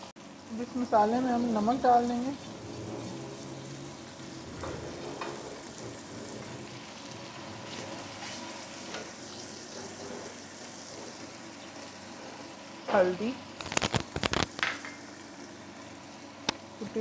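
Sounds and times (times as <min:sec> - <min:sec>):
masala sizzling in hot oil: 0:00.0 - 0:17.0
wooden spatula scraping a pan: 0:01.8 - 0:06.8, 0:07.5 - 0:11.4.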